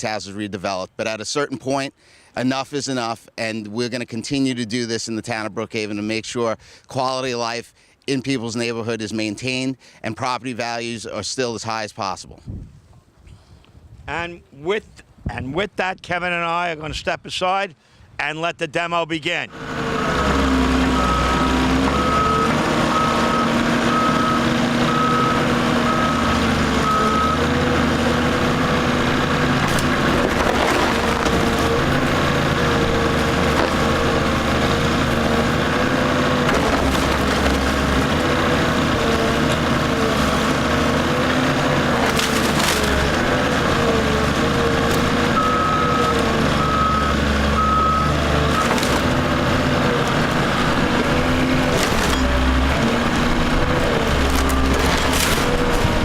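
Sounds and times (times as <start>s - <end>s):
demolition machine engine: 19.5s - 56.0s
reversing alarm beeping: 20.9s - 27.5s, 45.4s - 48.8s
wood splintering and cracking: 26.5s - 45.4s, 48.4s - 50.4s, 51.1s - 56.0s.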